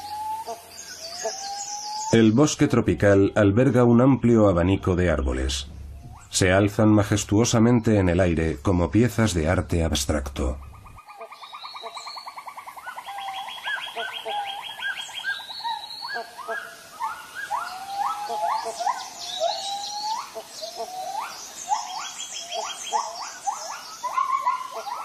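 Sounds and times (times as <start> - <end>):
upward sweeping bird calls: 0.0 - 3.4, 4.6 - 8.1, 10.1 - 25.0
rapid bird trills: 5.6 - 6.6, 10.4 - 25.0.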